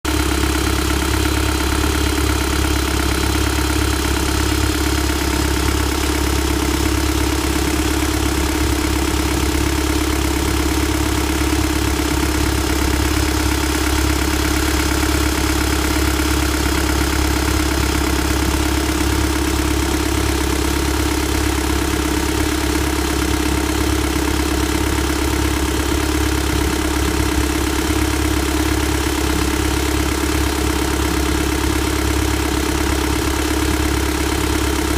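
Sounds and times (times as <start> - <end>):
diesel engine idling: 0.1 - 34.9.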